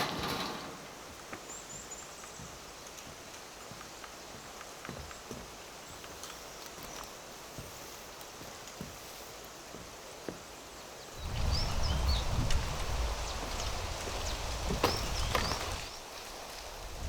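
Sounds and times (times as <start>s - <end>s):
wind buffeting microphone: 11.2s - 17.0s.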